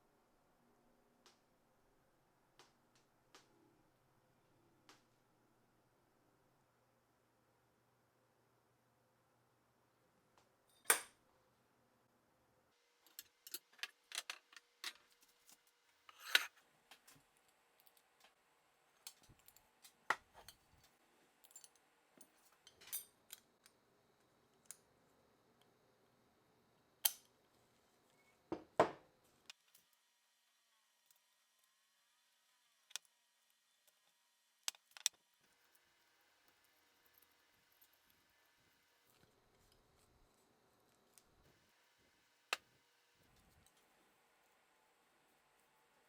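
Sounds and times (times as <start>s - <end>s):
metal parts and tools clinking: 13.1s - 16.5s.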